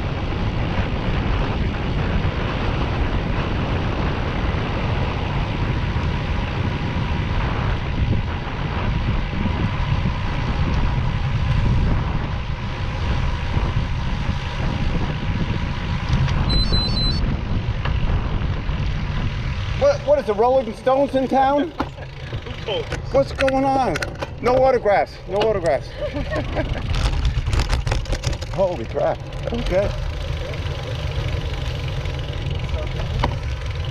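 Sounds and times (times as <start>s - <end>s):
motorcycle engine rumble: 0.0s - 33.9s
wind noise: 0.0s - 33.9s
short high electronic beeps: 16.4s - 17.2s.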